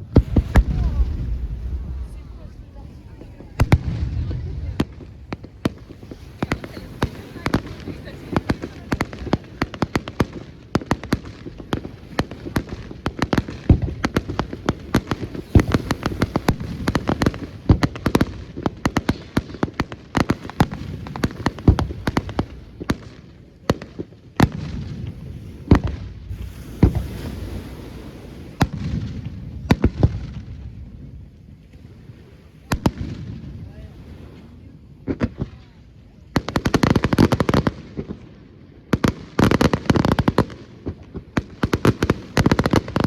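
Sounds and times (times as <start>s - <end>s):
low rumble: 0.0s - 6.5s
fireworks bursting and crackling: 0.0s - 43.0s.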